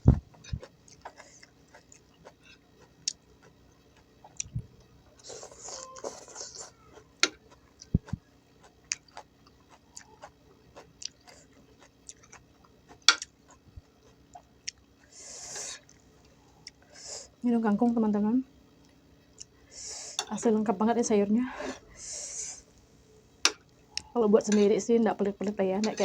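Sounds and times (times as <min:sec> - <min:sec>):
chewing crunchy food: 0:00.2 - 0:17.0, 0:18.7 - 0:19.7.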